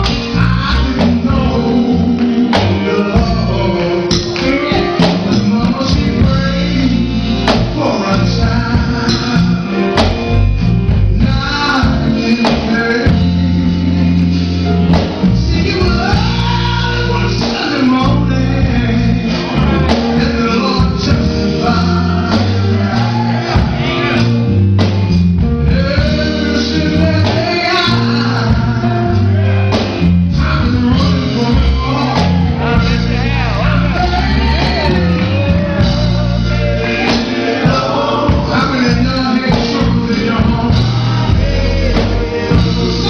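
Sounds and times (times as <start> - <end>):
band with bass and drums: 0.0 - 43.0
man singing gospel: 0.0 - 43.0.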